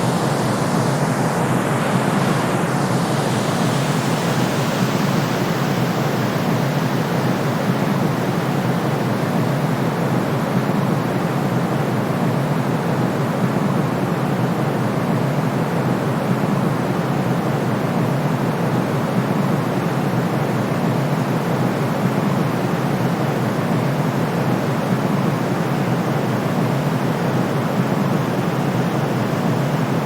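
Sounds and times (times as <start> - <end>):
white noise hiss: 0.0 - 12.0, 18.4 - 30.0.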